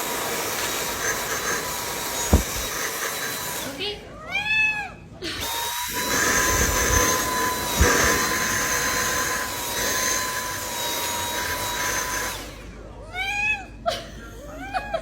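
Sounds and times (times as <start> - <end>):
thump: 2.3 - 2.8.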